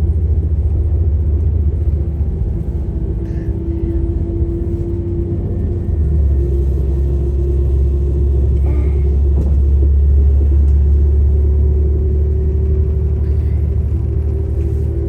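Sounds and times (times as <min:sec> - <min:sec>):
train rumble inside carriage: 0:00.0 - 0:15.0.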